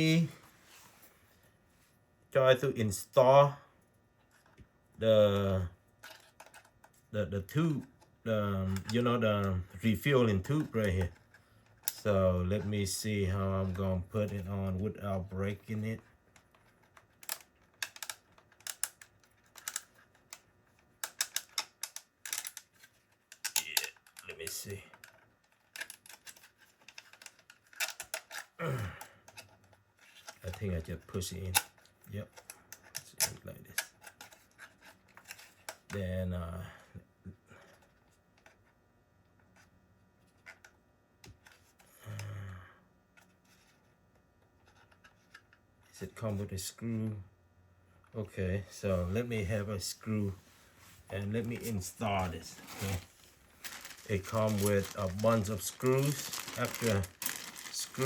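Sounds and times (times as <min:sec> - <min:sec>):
plastic parts clicking and rattling: 0:06.0 - 0:14.5, 0:15.7 - 0:36.0, 0:51.3 - 0:58.0
plastic parts clicking: 0:16.3 - 0:28.6, 0:53.6 - 0:58.0.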